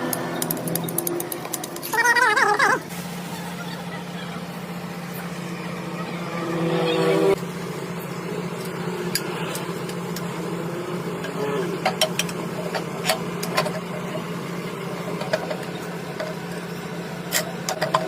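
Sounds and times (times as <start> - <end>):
sharp clicks: 0.0 - 1.9
steady motor hum: 0.0 - 18.0.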